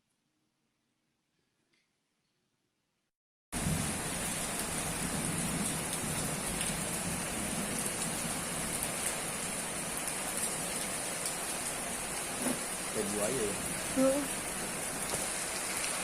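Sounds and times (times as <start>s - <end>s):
heavy rain hissing: 3.6s - 16.0s.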